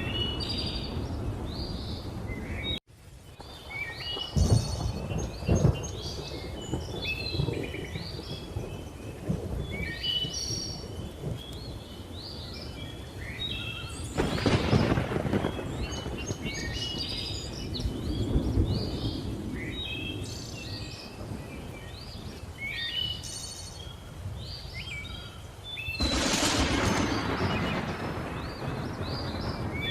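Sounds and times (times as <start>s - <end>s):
thunder rumbling: 3.4s - 13.2s, 13.8s - 22.4s, 26.0s - 29.9s.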